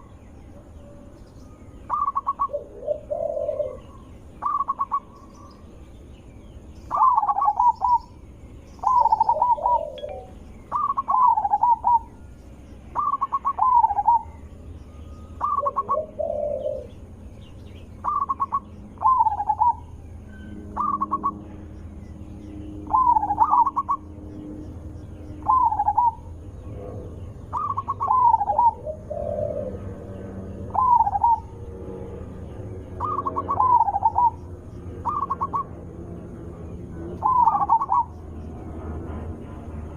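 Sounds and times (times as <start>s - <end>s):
dove cooing: 1.9s - 5.2s, 6.9s - 8.1s, 8.8s - 12.2s, 12.9s - 14.4s, 15.4s - 17.2s, 18.0s - 20.0s, 20.7s - 21.4s, 22.8s - 24.1s, 25.4s - 31.7s, 33.0s - 34.4s, 35.0s - 35.7s, 37.2s - 38.1s.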